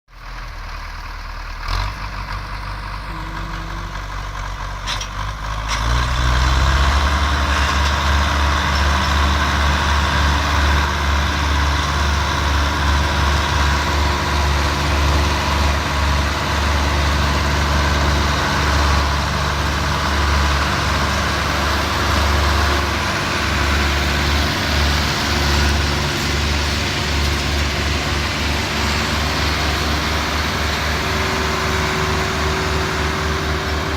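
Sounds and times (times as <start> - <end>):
tractor diesel engine labouring: 0.1 - 33.9.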